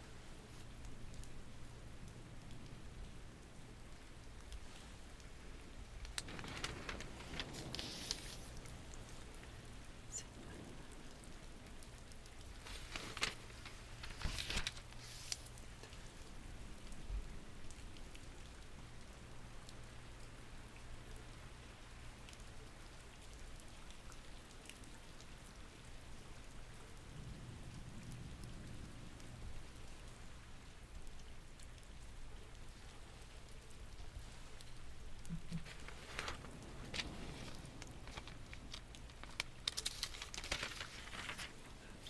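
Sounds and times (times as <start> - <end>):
soft low rumble: 0.0 - 20.0, 26.7 - 42.0
steady rain falling: 0.0 - 42.0
crisp rustles: 4.4 - 10.2, 12.1 - 16.4, 34.0 - 42.0.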